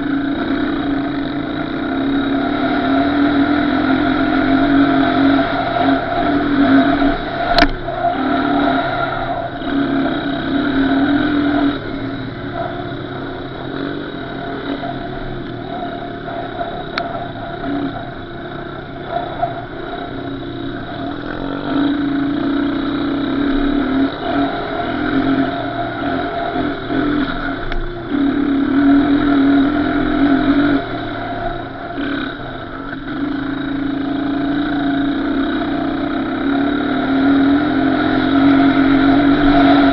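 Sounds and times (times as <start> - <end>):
off-road engine revving: 0.0 - 39.9
sharp click: 7.5 - 7.8.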